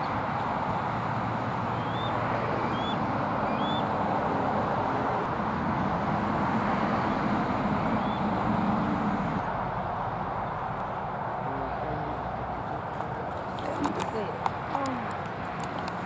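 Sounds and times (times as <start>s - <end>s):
steady rumble: 0.0s - 12.7s
eagle calling: 1.8s - 3.9s.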